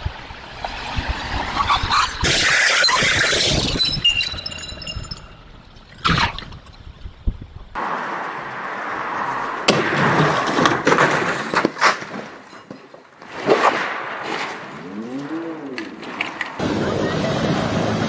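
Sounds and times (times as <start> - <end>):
road noise: 0.0 - 18.0
car crash bangs and crunches: 7.8 - 14.8.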